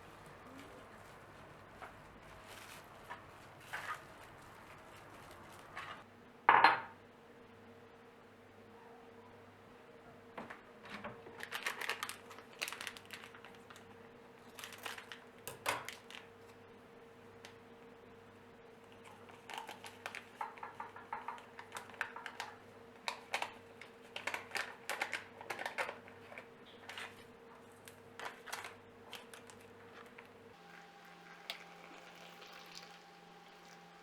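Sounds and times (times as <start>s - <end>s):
small objects clicking and tapping: 19.5s - 22.5s.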